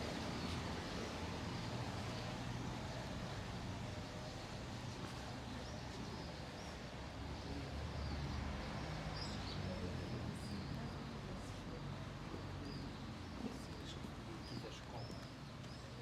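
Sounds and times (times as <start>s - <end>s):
low traffic rumble: 0.0s - 16.0s
small birds chirping: 4.2s - 16.0s.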